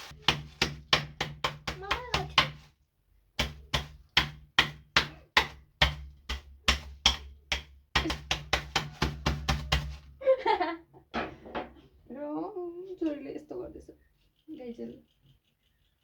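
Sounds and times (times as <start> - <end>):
knife chopping on cutting board: 3.4 - 10.0.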